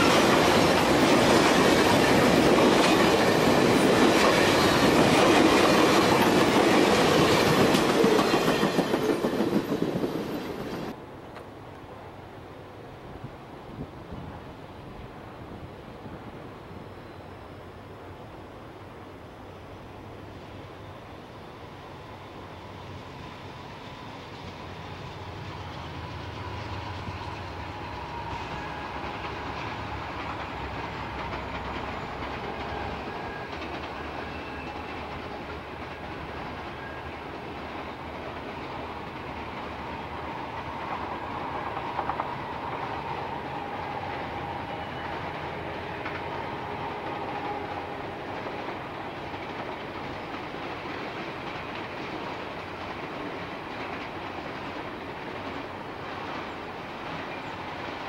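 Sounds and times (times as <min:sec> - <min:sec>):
wheels clacking over rails: 0:00.0 - 0:11.0, 0:27.2 - 0:58.0
freight train rumbling: 0:00.0 - 0:58.0.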